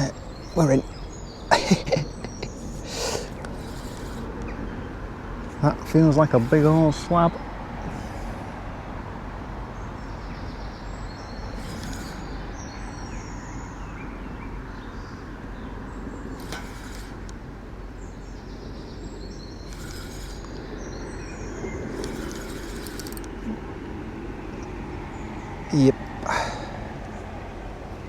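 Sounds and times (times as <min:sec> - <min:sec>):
small birds chirping: 0:00.0 - 0:28.0
bursts of hiss: 0:01.5 - 0:04.6, 0:05.6 - 0:08.4, 0:11.4 - 0:13.0, 0:16.2 - 0:17.6, 0:19.6 - 0:20.9, 0:21.9 - 0:23.3.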